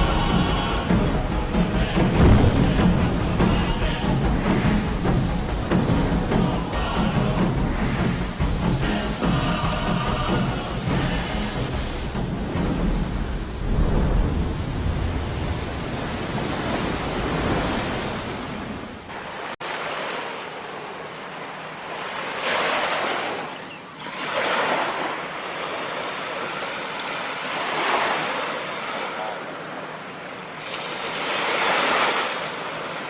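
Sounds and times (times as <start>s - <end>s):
wind rumbling on microphone: 0.0s - 19.1s
waves breaking on shore: 0.0s - 33.0s.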